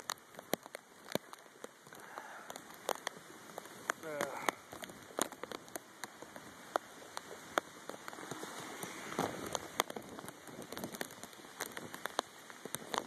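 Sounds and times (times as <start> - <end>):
raindrops ticking: 0.0 - 13.0
heavy rain hissing: 1.8 - 5.3, 6.2 - 12.7.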